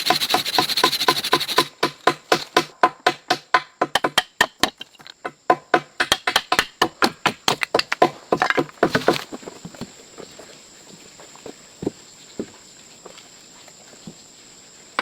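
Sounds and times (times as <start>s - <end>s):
chopping strikes into wood: 0.1s - 4.9s, 5.5s - 9.2s.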